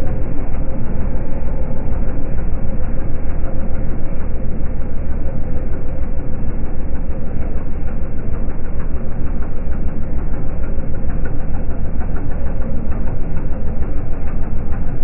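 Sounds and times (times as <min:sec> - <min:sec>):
diesel engine deep rumble: 0:00.0 - 0:15.0.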